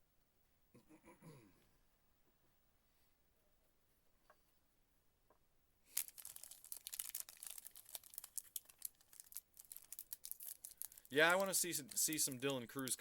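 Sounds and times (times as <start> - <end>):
wrapper torn open and crinkled: 5.9 - 12.5.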